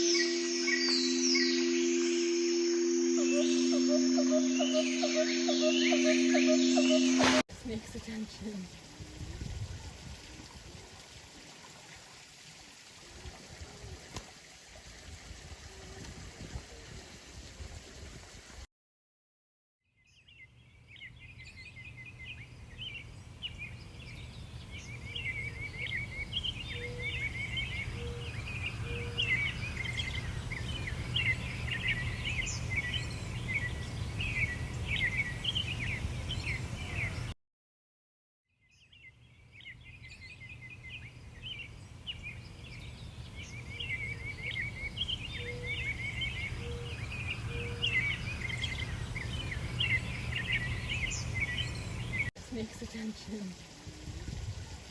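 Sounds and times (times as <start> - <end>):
small birds chirping: 39.6 - 53.6.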